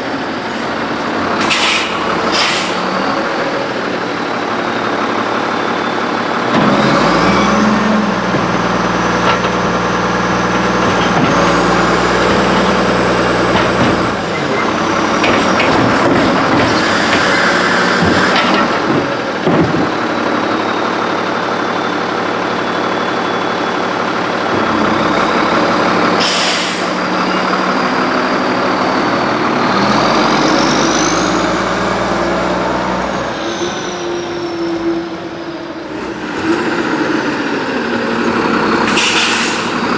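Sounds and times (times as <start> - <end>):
truck engine running: 0.0 - 39.9
air brakes hissing: 0.4 - 3.2, 26.2 - 27.1, 37.9 - 39.9.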